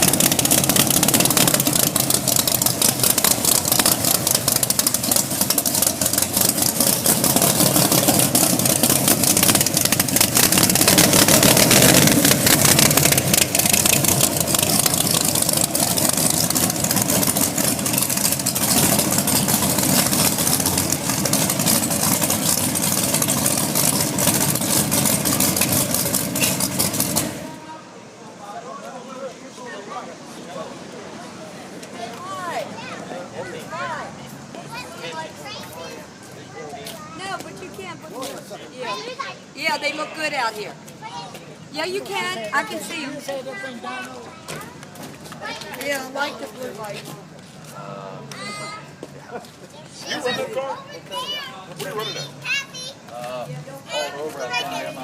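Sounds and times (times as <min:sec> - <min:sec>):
racing engine running loud: 0:00.0 - 0:27.6.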